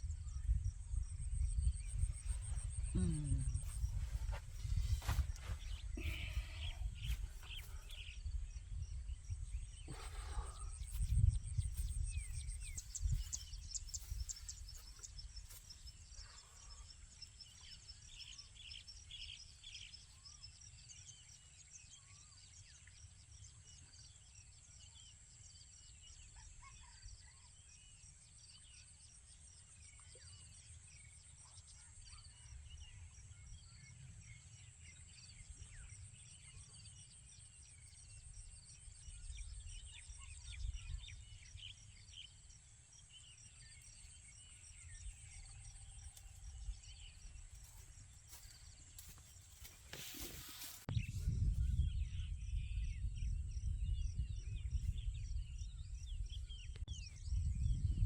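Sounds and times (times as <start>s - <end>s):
handling thumps and rustles: 49.0s - 50.9s.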